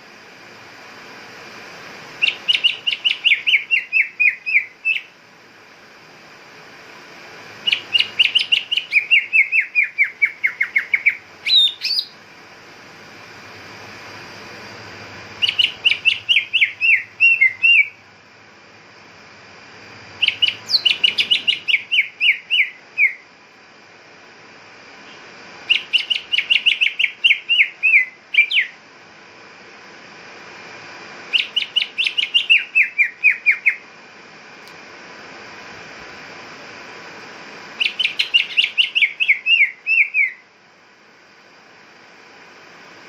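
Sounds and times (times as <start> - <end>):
bird whistling descending notes: 2.2 - 5.1, 7.6 - 12.2, 15.4 - 18.0, 20.2 - 23.2, 25.7 - 28.8, 31.3 - 33.8, 37.8 - 40.4.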